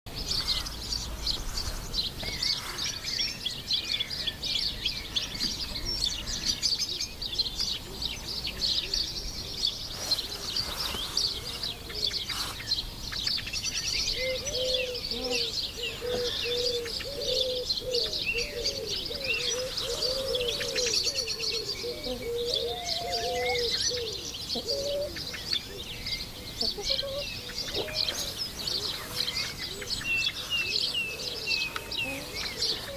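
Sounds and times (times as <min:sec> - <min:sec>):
small birds chirping: 0:00.1 - 0:32.9
dove cooing: 0:14.2 - 0:25.8, 0:26.6 - 0:32.9.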